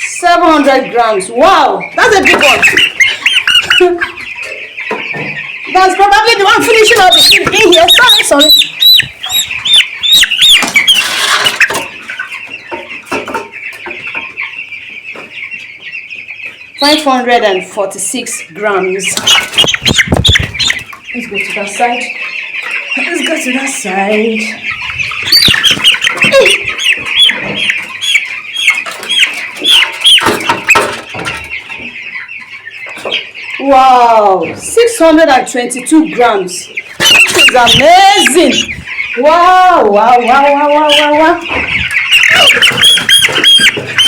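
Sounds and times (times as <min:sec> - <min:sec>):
chicks peeping: 0:00.0 - 0:44.0.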